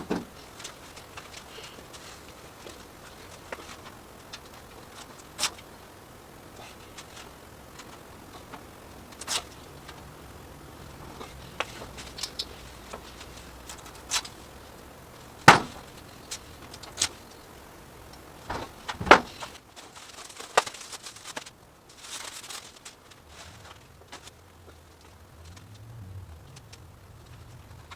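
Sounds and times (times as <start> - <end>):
knocks on steel door panel: 15.5 - 15.8, 18.5 - 19.4.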